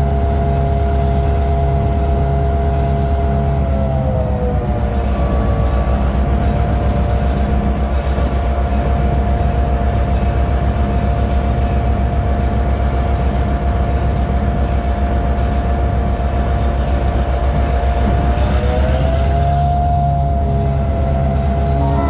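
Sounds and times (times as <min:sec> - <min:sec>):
locomotive engine throb: 0:00.0 - 0:22.0
steady high tone: 0:19.6 - 0:22.0.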